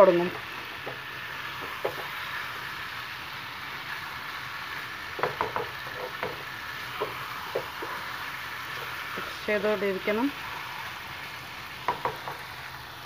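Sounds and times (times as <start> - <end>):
chicken sizzling in a pan: 0.0 - 13.0
spatula scraping a pan: 5.3 - 9.6.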